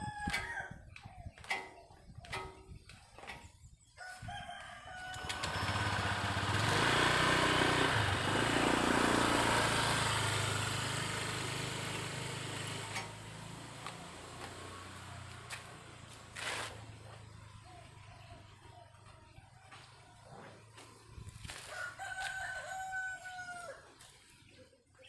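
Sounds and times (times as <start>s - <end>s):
vehicle passing by: 5.2s - 22.9s.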